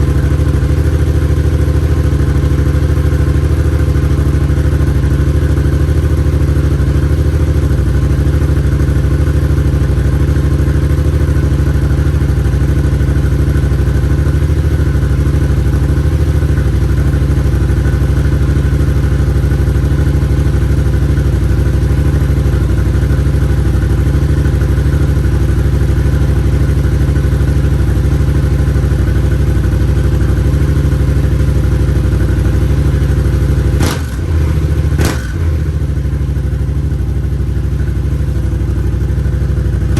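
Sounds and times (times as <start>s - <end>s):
motorcycle engine idling: 0.0s - 39.9s
light exhaust rattle: 32.1s - 39.9s.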